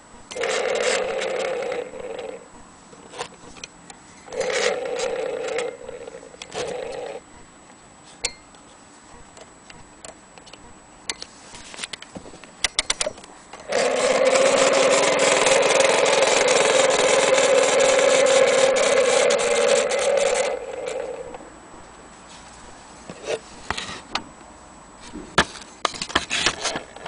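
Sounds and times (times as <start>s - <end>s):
loud whirring buzz with crackle: 13.5s - 21.5s.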